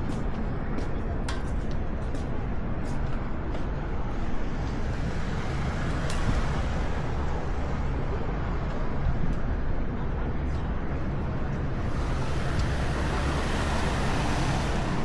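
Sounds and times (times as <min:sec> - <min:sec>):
heavy low rumble: 0:03.9 - 0:15.0.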